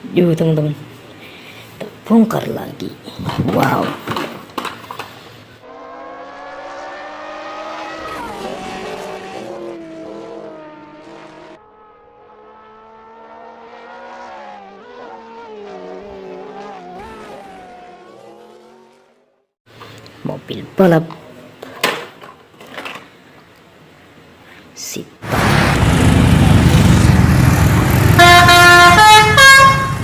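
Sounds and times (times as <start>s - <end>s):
race car engine: 5.6s - 19.5s, 25.2s - 30.0s.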